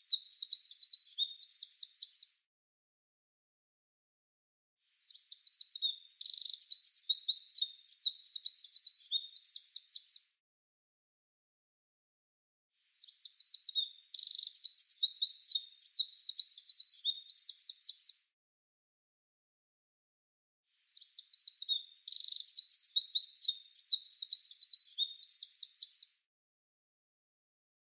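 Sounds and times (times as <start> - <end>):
songbird singing trills: 0.0 - 2.3, 5.0 - 10.3, 12.9 - 18.2, 20.8 - 26.2
songbird trilling: 21.0 - 26.1.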